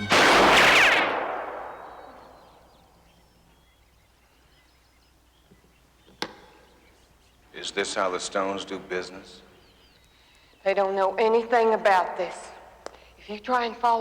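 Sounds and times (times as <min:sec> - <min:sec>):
loud ringing bang: 0:00.0 - 0:02.6.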